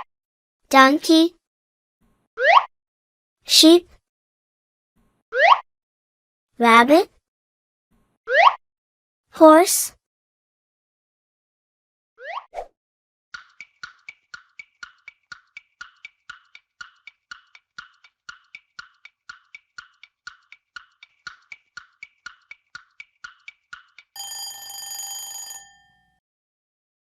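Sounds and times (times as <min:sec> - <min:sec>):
countdown timer ticking: 0:13.4 - 0:25.0
buzzer-like ring: 0:24.2 - 0:26.1.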